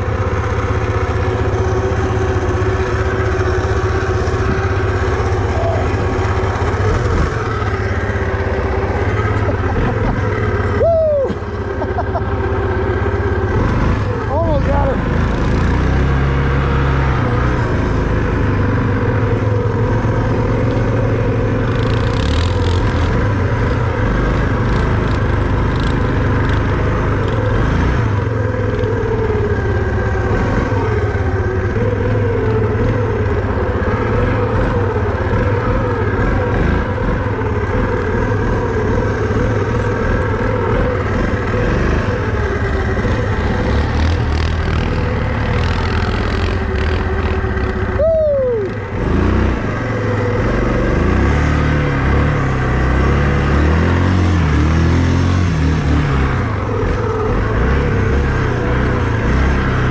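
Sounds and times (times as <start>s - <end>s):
vehicle engine running: 0.0s - 59.9s.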